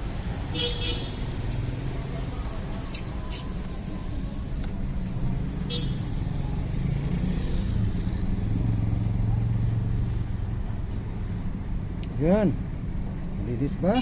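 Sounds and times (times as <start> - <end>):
street noise: 0.0 - 14.0
vehicle engine humming: 0.0 - 14.0.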